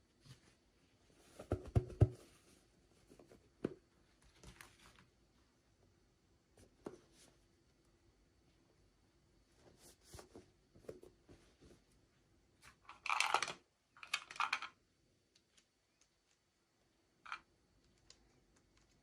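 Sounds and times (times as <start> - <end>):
plastic toys clicking and tapping: 12.9 - 14.8.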